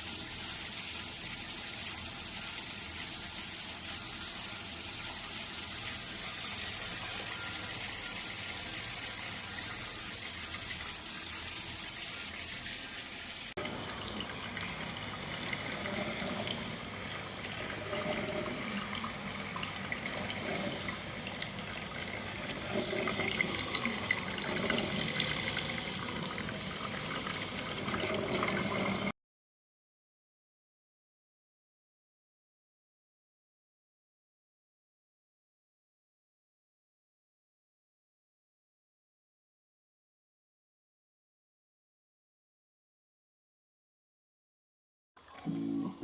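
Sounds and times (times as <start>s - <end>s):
coffee maker gurgling: 0.0s - 29.1s.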